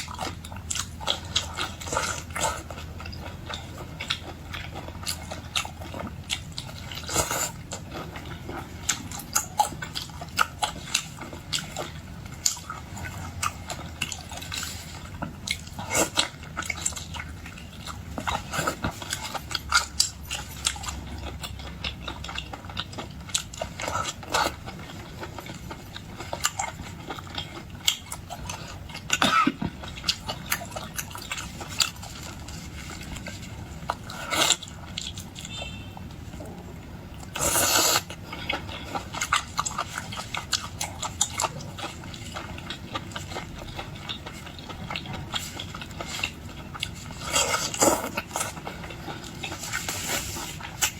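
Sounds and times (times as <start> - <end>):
person biting and chewing: 37.2 - 50.9.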